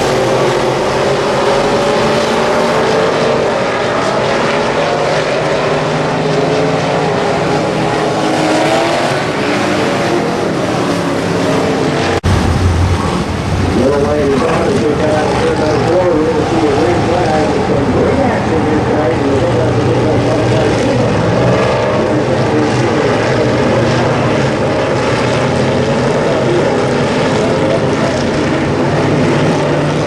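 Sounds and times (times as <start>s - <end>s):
race car engines: 0.0s - 30.0s.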